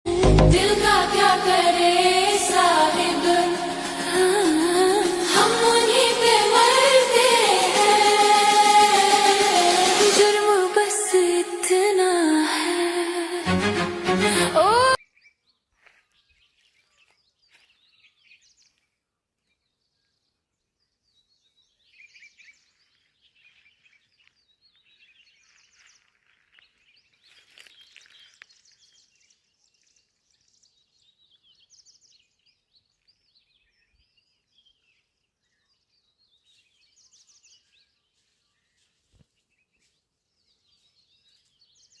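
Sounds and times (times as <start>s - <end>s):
birds chirping and trilling: 19.5s - 38.9s.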